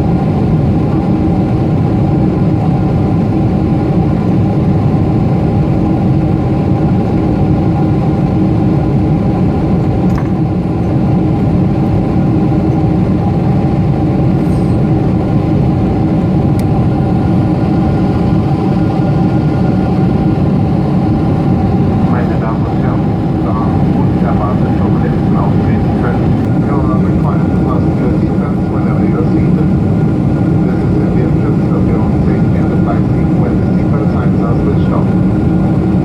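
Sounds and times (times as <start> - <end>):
jet airliner cabin noise: 0.0 - 36.0
jet engine tones: 9.9 - 36.0.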